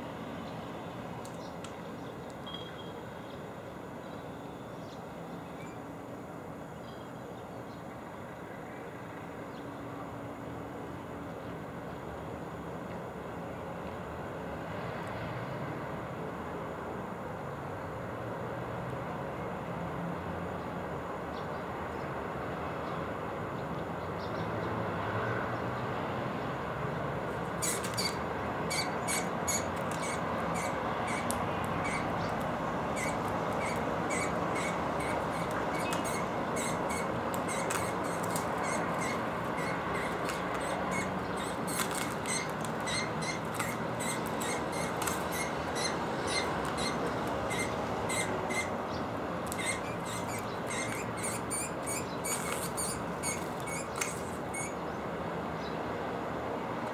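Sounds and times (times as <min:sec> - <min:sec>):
steady background hum: 0:00.0 - 0:14.7, 0:26.6 - 0:56.9
small birds chirping: 0:27.4 - 0:55.0.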